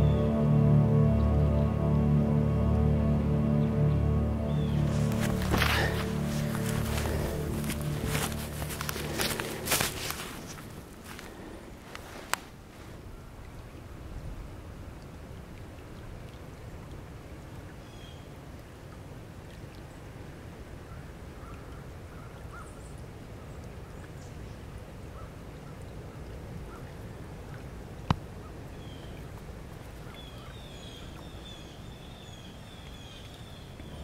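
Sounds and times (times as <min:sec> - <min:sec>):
low outdoor rumble: 0:00.0 - 0:17.5
small birds chirping: 0:04.4 - 0:10.6.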